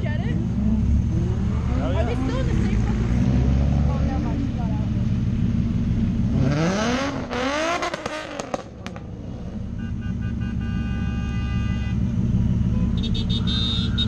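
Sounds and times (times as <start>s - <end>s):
car engine revving: 0.0s - 13.6s
engines idling: 0.0s - 14.0s
exhaust cracks: 5.4s - 9.6s.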